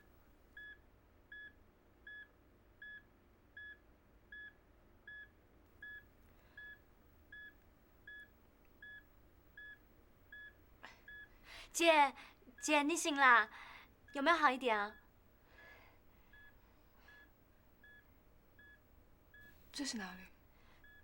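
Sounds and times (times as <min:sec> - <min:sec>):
patient monitor beeping: 0:04.4 - 0:11.3, 0:16.3 - 0:19.5, 0:20.8 - 0:21.0.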